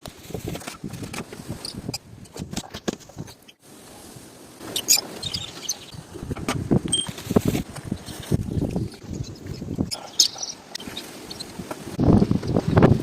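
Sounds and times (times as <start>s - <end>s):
sharp rustle: 0.1s - 12.9s
birds tapping and scuffling: 4.6s - 13.0s.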